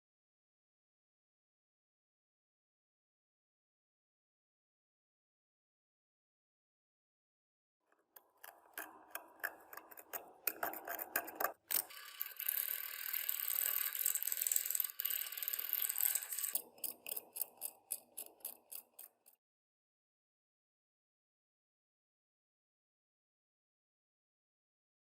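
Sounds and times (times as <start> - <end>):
metallic ratcheting clicks: 8.2 - 19.3.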